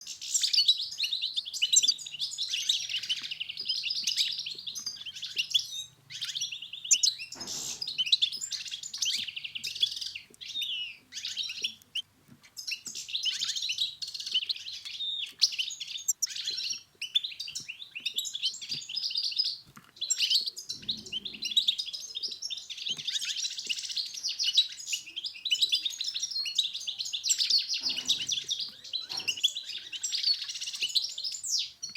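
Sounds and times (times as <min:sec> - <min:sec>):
finch twittering song: 0:00.0 - 0:31.9.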